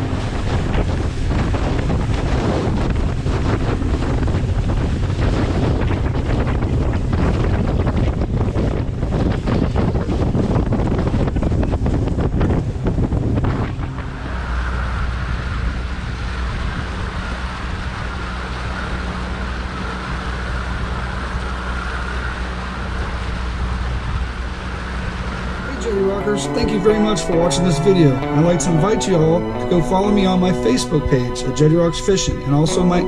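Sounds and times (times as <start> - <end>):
wind buffeting microphone: 0.0 - 25.9
motor low drone: 0.0 - 33.0.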